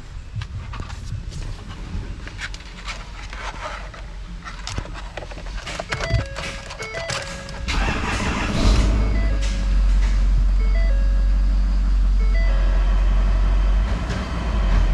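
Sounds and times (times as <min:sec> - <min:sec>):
diesel engine deep rumble: 0:07.2 - 0:14.9
background music simple melody: 0:08.6 - 0:12.8.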